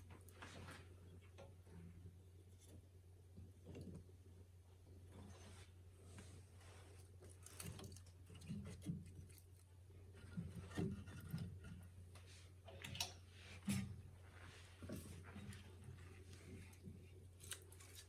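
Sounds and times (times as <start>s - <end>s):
firewood knocking and scraping: 10.1s - 12.1s.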